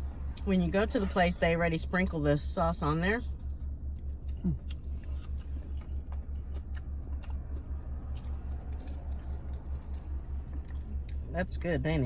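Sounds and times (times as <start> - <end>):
low pulsing hum: 0.0 - 12.0
crunchy biting and chewing: 4.0 - 11.3.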